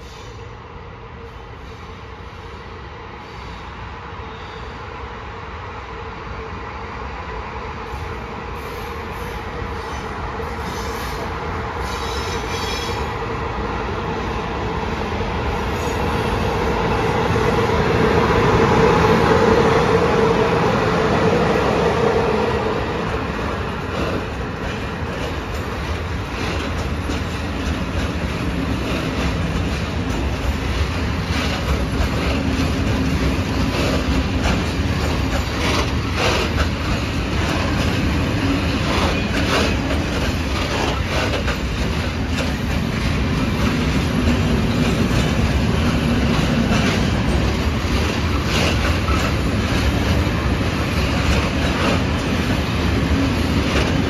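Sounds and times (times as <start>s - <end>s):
freight train rumbling: 0.0s - 54.0s
locomotive humming past: 4.3s - 54.0s
wheels clicking over rail joints: 23.8s - 54.0s.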